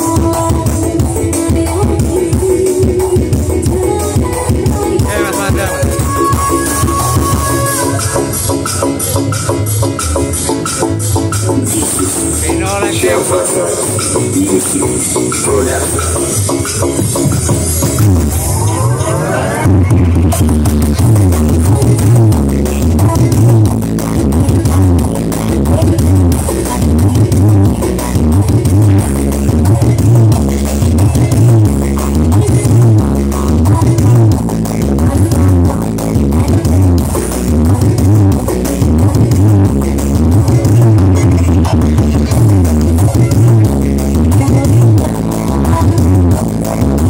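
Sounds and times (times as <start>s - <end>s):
loud dance music with heavy bass: 0.0s - 47.0s.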